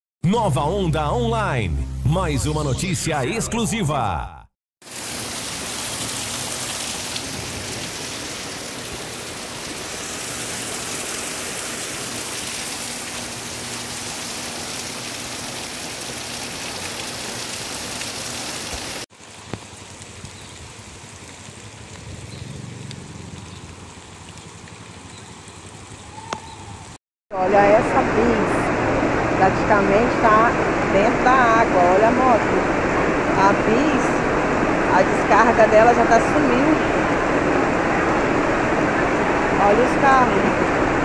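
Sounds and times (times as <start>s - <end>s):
heavy rain on pavement: 4.8s - 26.2s.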